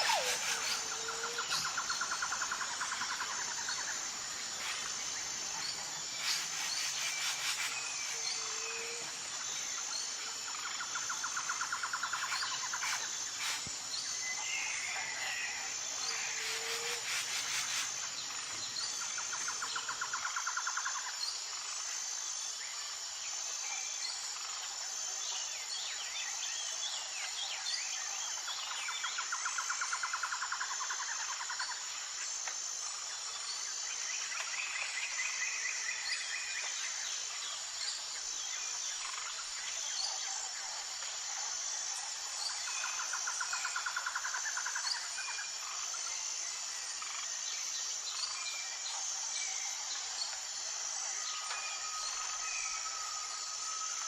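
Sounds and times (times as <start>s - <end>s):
bird's rapid trill: 0.0s - 1.0s
birds chirping and calling: 0.0s - 2.2s
insects droning: 0.0s - 54.0s.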